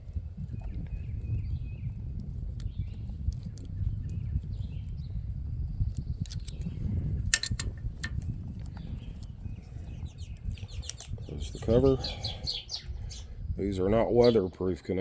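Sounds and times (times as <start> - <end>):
wind buffeting microphone: 0.0 - 15.0
sharp clicks: 7.3 - 8.2.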